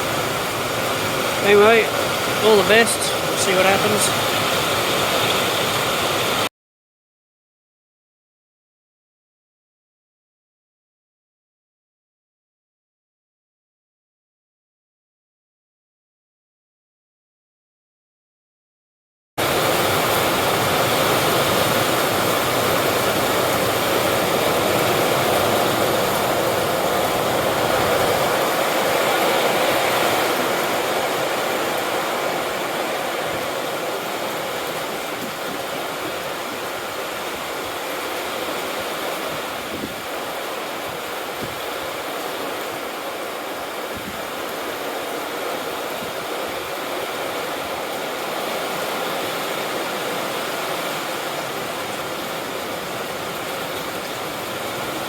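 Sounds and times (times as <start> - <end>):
water rushing: 0.0 - 6.5, 19.4 - 55.0.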